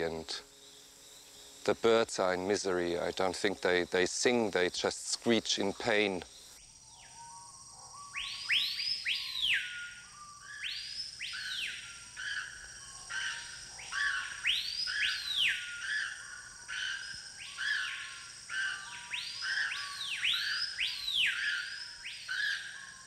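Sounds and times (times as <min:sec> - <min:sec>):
whistled bird calls: 0:06.9 - 0:23.0.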